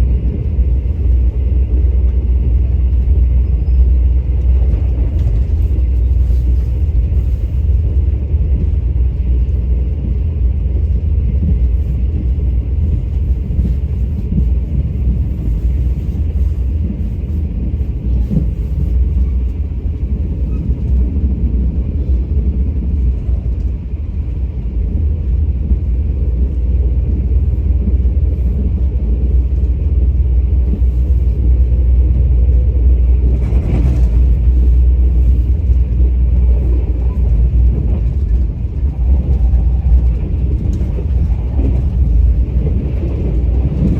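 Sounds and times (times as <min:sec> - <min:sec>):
train rumbling: 0:00.0 - 0:43.9.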